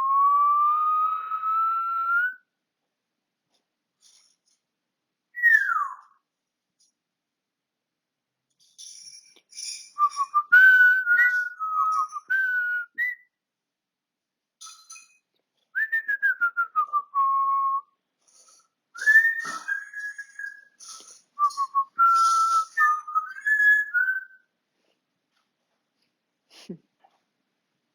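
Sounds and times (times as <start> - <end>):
parrot whistling: 0.0 - 2.4, 5.4 - 6.1, 10.0 - 13.2, 19.0 - 24.4.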